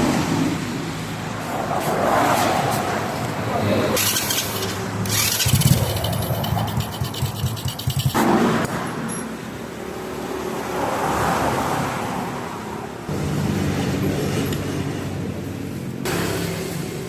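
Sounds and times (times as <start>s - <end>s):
vehicle engine running: 4.0s - 8.6s, 13.1s - 17.0s.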